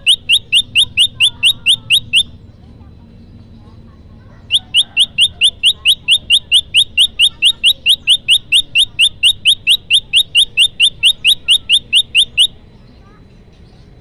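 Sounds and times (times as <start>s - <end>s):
bird chip notes: 0.0s - 2.4s, 4.5s - 12.6s.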